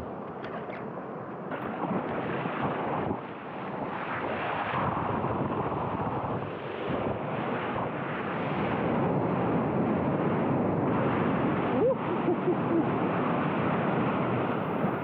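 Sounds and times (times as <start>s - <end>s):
wind on microphone: 0.0s - 15.0s
ocean surf: 6.5s - 15.0s.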